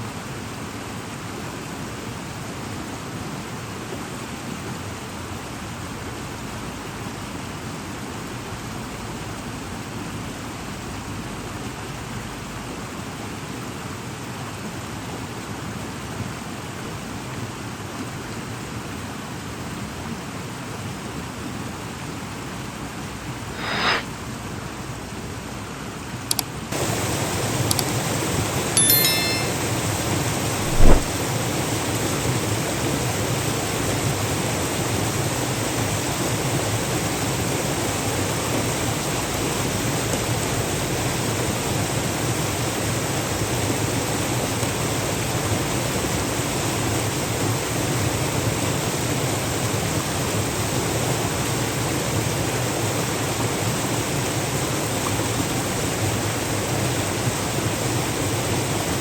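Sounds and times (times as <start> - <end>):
steady rushing noise: 30.6 - 31.1
sharp knock: 30.7 - 31.1.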